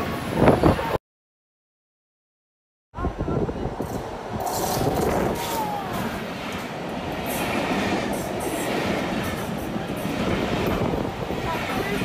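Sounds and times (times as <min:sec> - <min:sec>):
train wheels on rails: 0:03.7 - 0:12.0.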